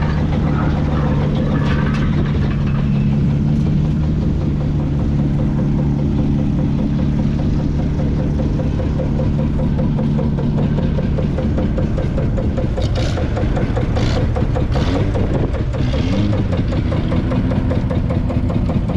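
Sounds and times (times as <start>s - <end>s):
diesel engine running: 0.0s - 18.9s.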